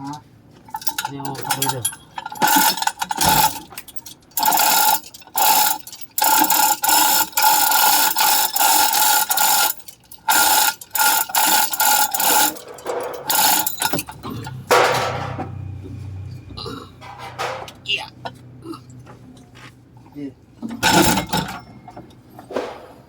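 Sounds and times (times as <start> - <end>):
ratchet clicking: 2.4 - 14.2.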